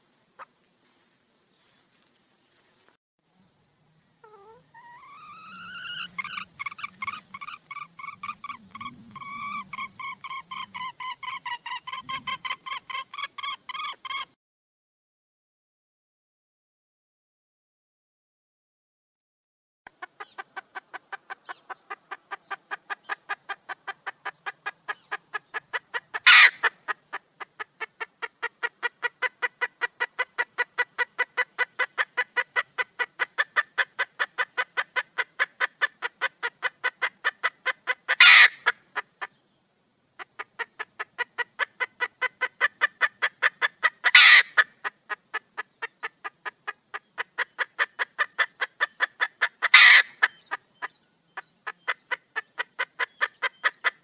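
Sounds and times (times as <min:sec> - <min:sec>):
hen clucking: 0:04.2 - 0:14.4, 0:19.9 - 0:39.4, 0:40.2 - 0:54.0
hen squawking harshly: 0:04.3 - 0:14.2, 0:26.2 - 0:26.7, 0:38.2 - 0:38.7, 0:44.1 - 0:44.6, 0:49.7 - 0:50.2.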